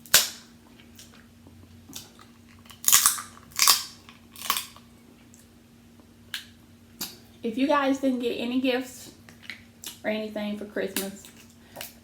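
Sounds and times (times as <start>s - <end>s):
crunching seafood being eaten: 0.1s - 5.5s.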